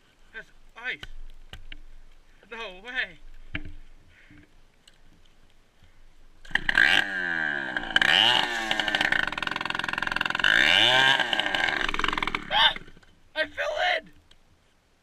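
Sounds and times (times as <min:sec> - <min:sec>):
dirt bike engine revving: 0:06.4 - 0:13.0.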